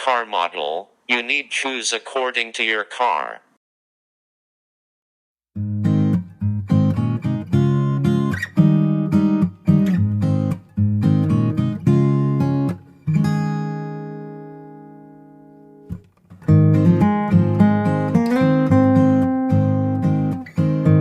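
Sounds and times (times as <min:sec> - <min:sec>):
acoustic guitar strumming chords: 0:05.6 - 0:21.0.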